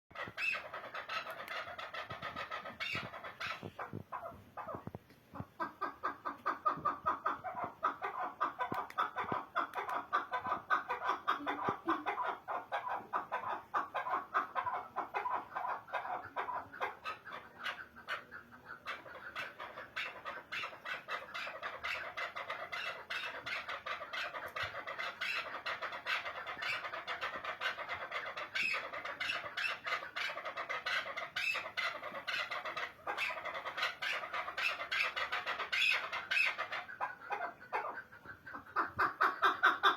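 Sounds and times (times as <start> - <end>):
partridge clucking calls: 0.1 - 39.9.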